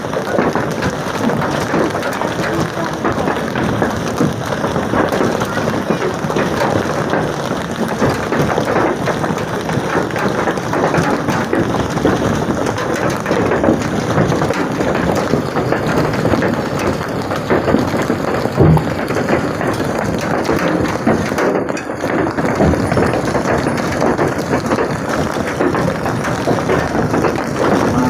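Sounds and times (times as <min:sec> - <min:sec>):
hailstones pelting down: 0:00.0 - 0:28.0.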